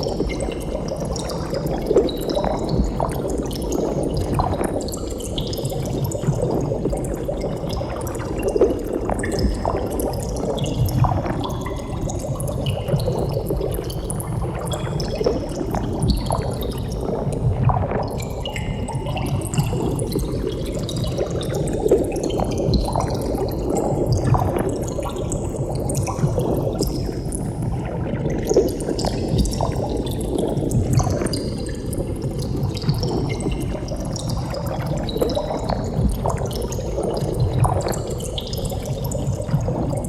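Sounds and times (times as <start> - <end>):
underwater bubbling: 0.0 - 40.0.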